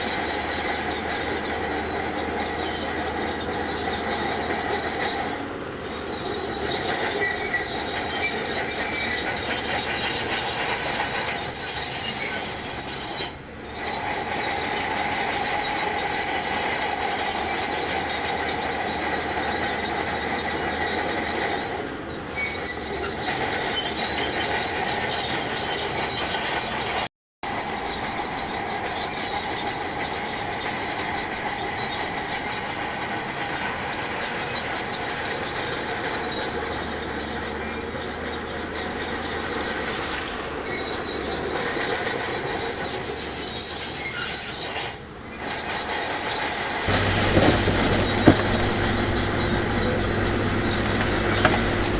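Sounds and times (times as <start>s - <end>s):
metallic squeal of steel tracks: 0.0s - 51.9s
bulldozer engine running: 45.1s - 51.9s.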